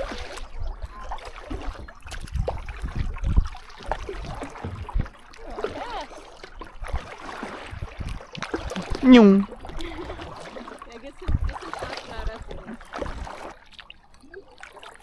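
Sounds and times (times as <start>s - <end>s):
water lapping and gurgling: 0.0s - 15.0s
paddle strokes splashing: 3.5s - 9.0s, 10.2s - 13.9s.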